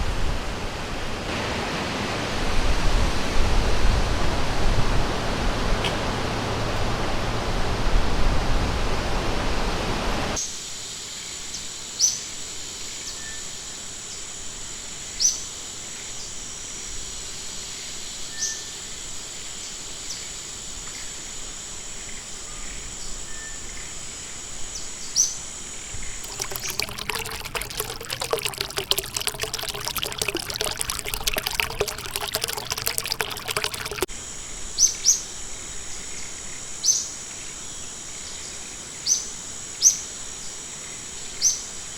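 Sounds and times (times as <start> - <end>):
rushing river water: 26.2 - 34.1.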